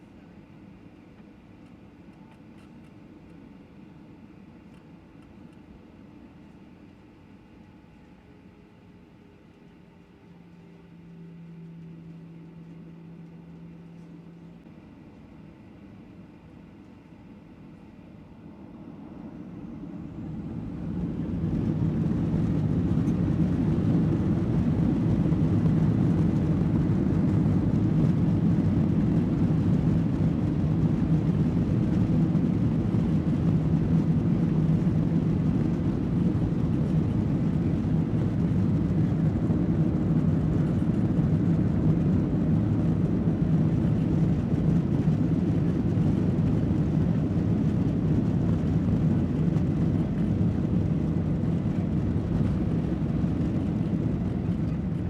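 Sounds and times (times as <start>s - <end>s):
runway rolling noise: 20.2s - 55.0s.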